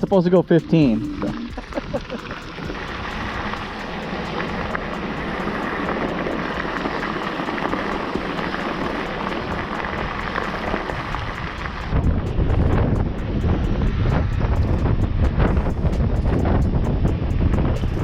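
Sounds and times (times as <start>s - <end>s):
road noise: 0.0s - 18.0s
wind rushing: 0.0s - 18.0s.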